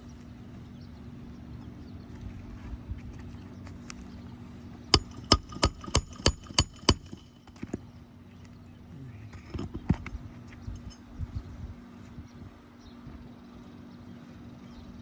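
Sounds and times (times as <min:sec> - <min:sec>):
hammer striking nail: 0:05.0 - 0:07.8.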